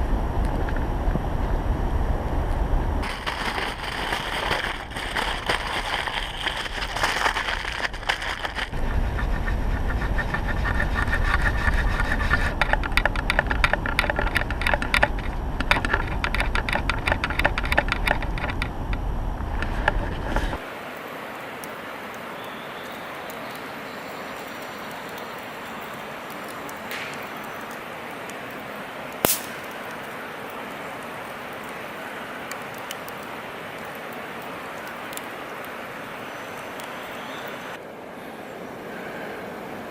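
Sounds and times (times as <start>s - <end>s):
wind rumble on microphone: 0.0s - 20.6s
wood fire crackling and popping: 2.5s - 37.8s
steady hiss: 17.6s - 39.9s.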